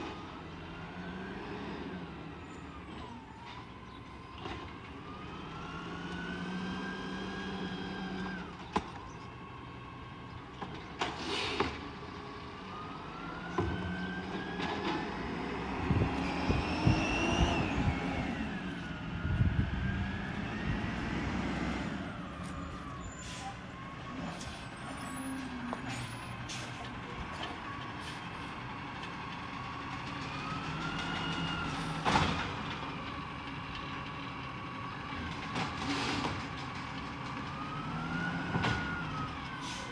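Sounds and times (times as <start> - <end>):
refuse truck engine revving: 5.1 - 8.6, 12.2 - 33.8
hydraulic whine: 13.5 - 26.6.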